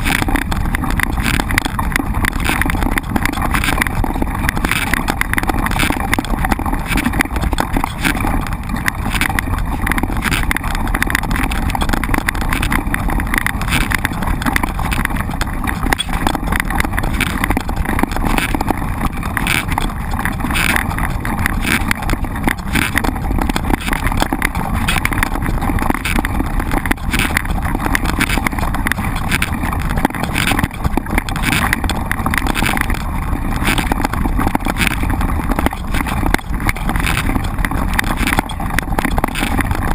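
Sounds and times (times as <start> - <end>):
bike knocks and rattles: 0.0 - 39.9.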